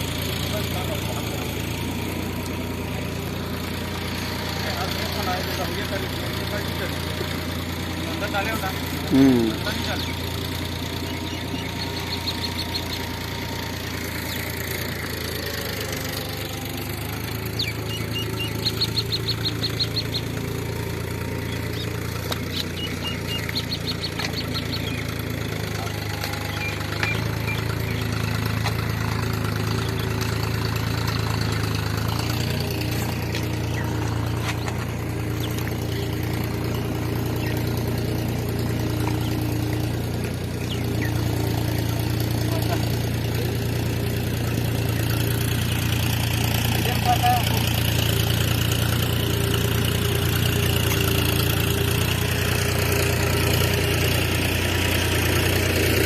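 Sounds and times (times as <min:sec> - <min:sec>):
diesel engine running: 0:00.0 - 0:56.0
high chirps: 0:08.7 - 0:14.9, 0:17.4 - 0:28.5.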